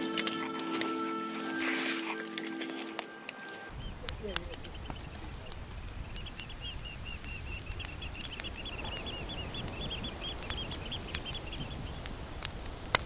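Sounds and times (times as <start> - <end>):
campfire crackling: 0.0 - 13.0
bird squeaky calls: 3.7 - 12.0.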